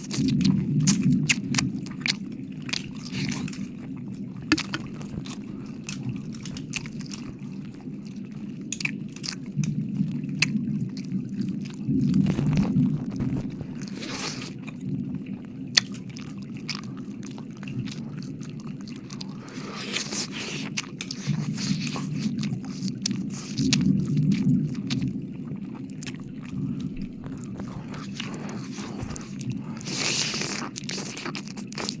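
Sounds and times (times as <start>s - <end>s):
wet lip and tongue clicks: 0.0s - 9.8s, 15.7s - 25.1s, 25.7s - 32.0s.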